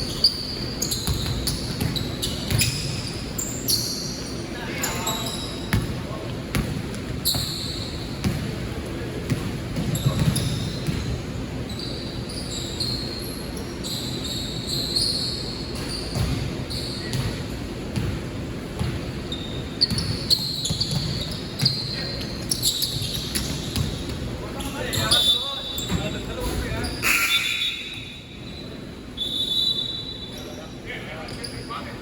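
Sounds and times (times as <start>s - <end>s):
sneaker squeaks: 0.0s - 32.0s
basketball bouncing on court: 0.6s - 3.1s, 5.7s - 11.3s, 15.7s - 25.2s.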